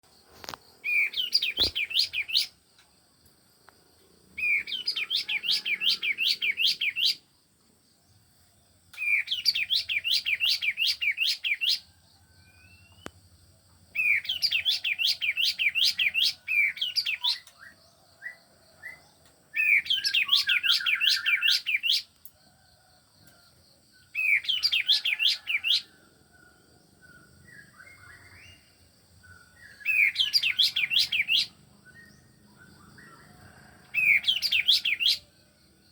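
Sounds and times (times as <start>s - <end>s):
bird chirps: 0.1s - 3.0s, 4.3s - 7.3s, 8.9s - 35.9s
songbird trilling: 0.4s - 2.6s, 4.4s - 7.3s, 9.0s - 13.2s, 13.9s - 22.2s, 24.0s - 35.4s.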